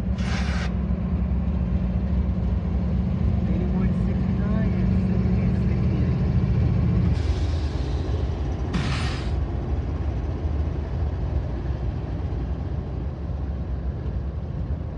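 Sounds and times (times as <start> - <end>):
diesel locomotive engine drone: 0.0 - 14.9
freight cars rumbling on rails: 0.0 - 14.9
short air hisses: 0.2 - 0.7, 8.7 - 9.4.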